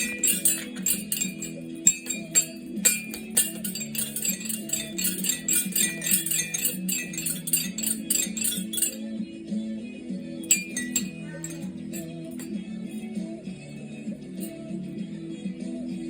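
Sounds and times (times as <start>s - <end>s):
small metal bells jingling: 0.0s - 9.1s, 10.4s - 13.0s.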